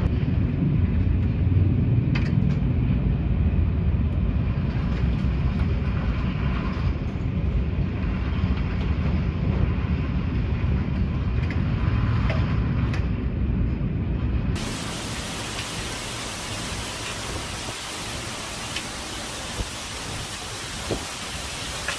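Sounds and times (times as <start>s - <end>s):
storm wind buffeting microphone: 0.0s - 21.9s
heavy rain hissing: 14.6s - 21.9s.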